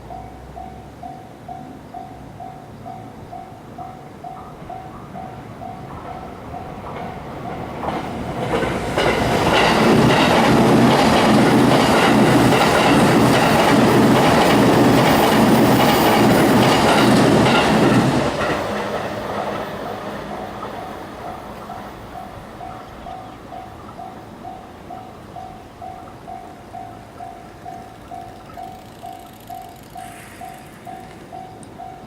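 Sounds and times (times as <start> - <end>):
train wheels on rails: 0.0 - 32.0.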